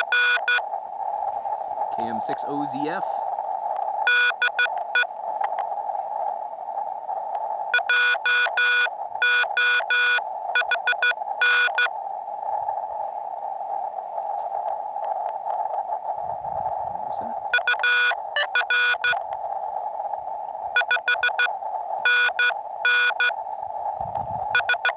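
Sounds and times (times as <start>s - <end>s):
morse code tone: 0.0s - 0.6s, 4.1s - 5.1s, 7.8s - 11.9s, 17.5s - 19.2s, 20.8s - 23.4s, 24.5s - 24.9s
radio receiver hiss: 0.0s - 24.9s.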